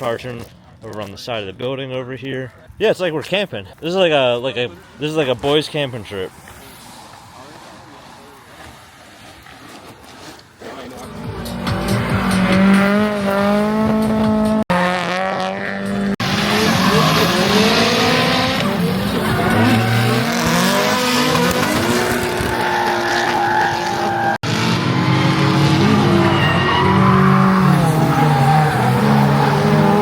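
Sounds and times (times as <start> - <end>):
car engines revving: 3.8 - 30.0
tyres screeching: 15.8 - 30.0.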